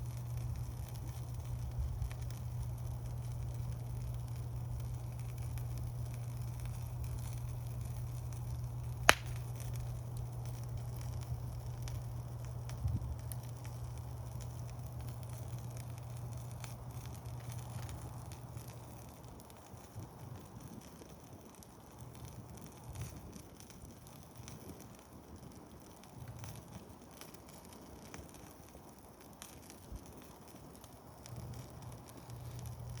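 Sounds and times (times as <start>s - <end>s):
low steady hum: 0.0s - 20.6s, 30.7s - 33.0s
campfire crackling and popping: 0.0s - 33.0s.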